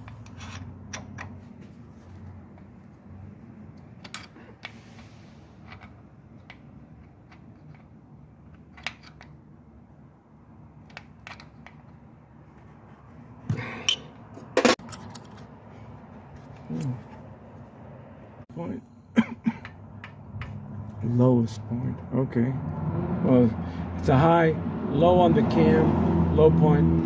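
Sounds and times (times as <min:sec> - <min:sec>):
metallic clicks and scrapes: 0:00.0 - 0:01.4, 0:03.7 - 0:09.4, 0:13.8 - 0:17.3.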